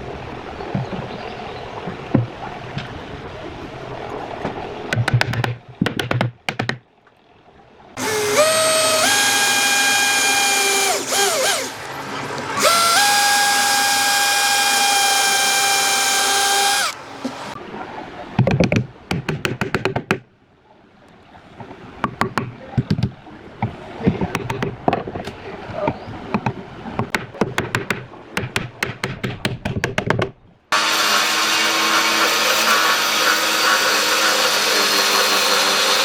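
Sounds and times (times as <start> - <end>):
power tool motor whining: 8.0 - 17.5, 30.8 - 36.0.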